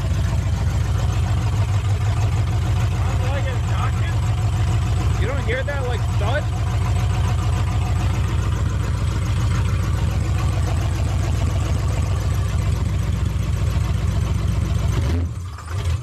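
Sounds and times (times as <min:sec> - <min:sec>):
truck engine idling: 0:00.0 - 0:16.0
engine thud and squeak: 0:06.6 - 0:16.0.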